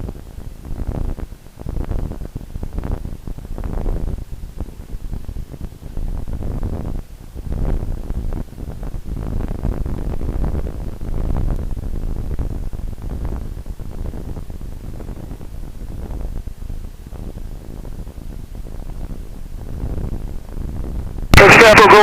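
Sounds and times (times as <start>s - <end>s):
radial engine rumble: 21.3s - 22.0s.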